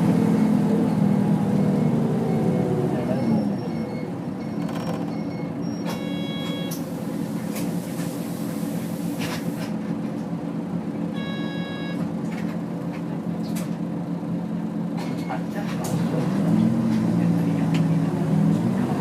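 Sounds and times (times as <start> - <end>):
bus diesel engine running: 0.0 - 19.0
short electronic tones: 3.7 - 6.8, 11.2 - 12.0.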